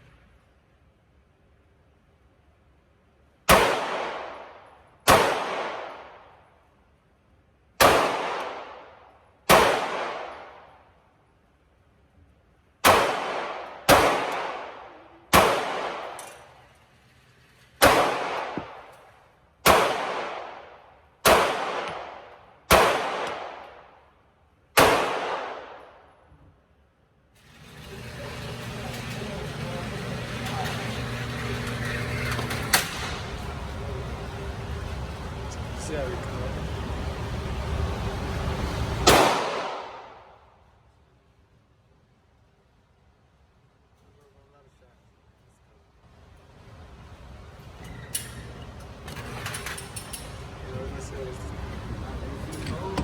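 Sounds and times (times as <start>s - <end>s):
pistol shots echoing: 3.5s - 6.4s, 7.8s - 10.8s, 12.8s - 16.6s, 17.8s - 19.0s, 19.6s - 23.9s, 24.8s - 26.0s, 39.0s - 40.3s.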